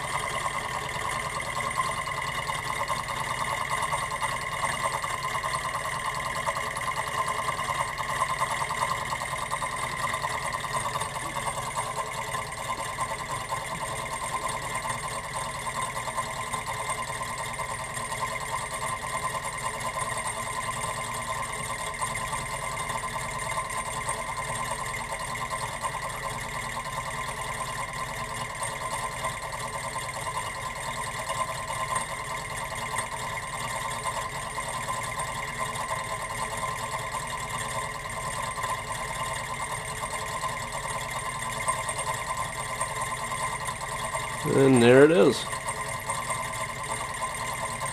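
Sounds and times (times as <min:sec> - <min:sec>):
stirling engine running: 0:44.2 - 0:45.6.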